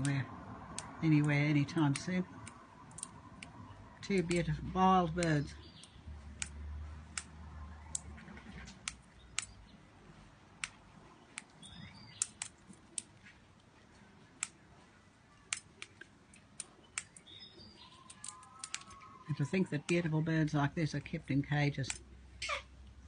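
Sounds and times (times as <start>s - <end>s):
birds feeding clicks and cracks: 0.0s - 9.9s, 10.5s - 13.7s, 15.4s - 23.0s
faint bird chirp: 11.1s - 12.4s, 16.7s - 19.6s.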